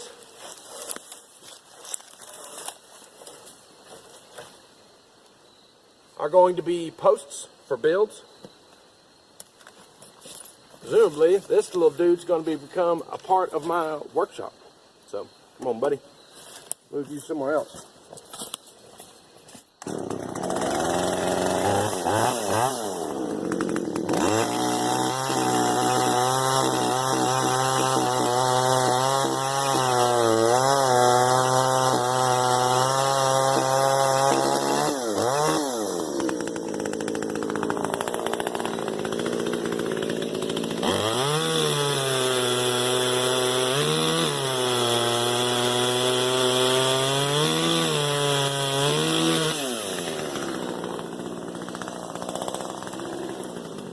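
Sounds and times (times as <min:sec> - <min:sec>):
chainsaw cutting logs: 0:00.0 - 0:04.5, 0:19.7 - 0:53.9.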